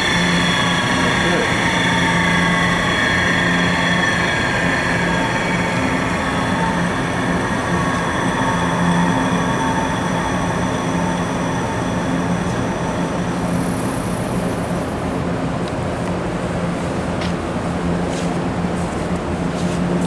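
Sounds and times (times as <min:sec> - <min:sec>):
grinder wheel coasting rumble: 0:00.0 - 0:15.2.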